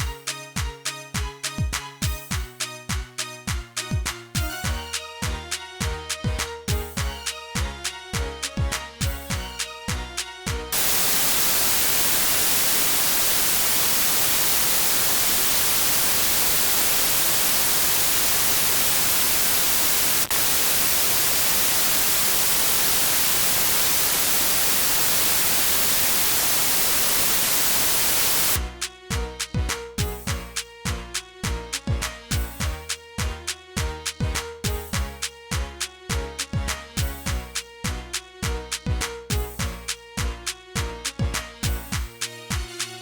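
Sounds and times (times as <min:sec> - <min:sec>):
afrobeat music: 0:00.0 - 0:12.7, 0:28.5 - 0:43.0
loud static hiss: 0:10.7 - 0:28.6.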